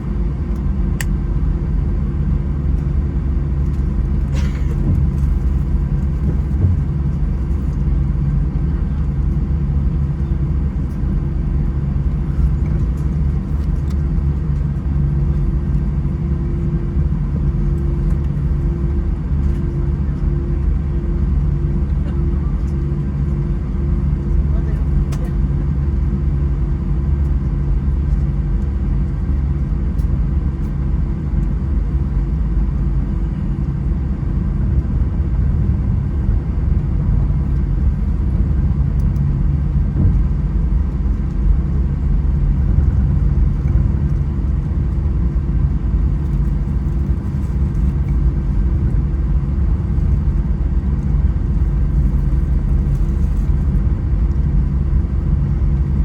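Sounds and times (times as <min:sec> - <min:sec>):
airplane cabin rumble: 0:00.0 - 0:56.0
faint steady hums: 0:00.0 - 0:56.0.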